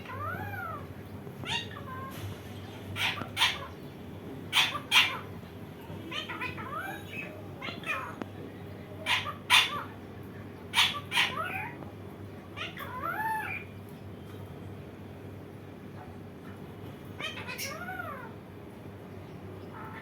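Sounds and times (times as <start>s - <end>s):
parakeet harsh screeches: 0.0s - 2.3s, 3.0s - 3.7s, 4.5s - 5.3s, 9.1s - 10.0s, 10.7s - 11.8s, 17.2s - 18.2s.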